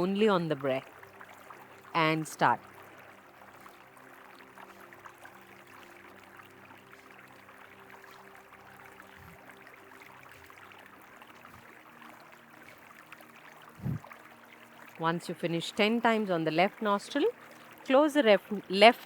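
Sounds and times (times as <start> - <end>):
soft low steady tones: 0.0 - 18.9
river water rushing: 0.9 - 15.0.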